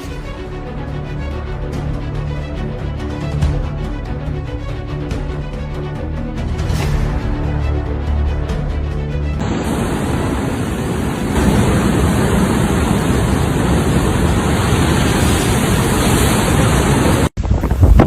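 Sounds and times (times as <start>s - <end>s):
heavy rain: 9.4s - 17.4s
storm wind: 9.4s - 18.0s.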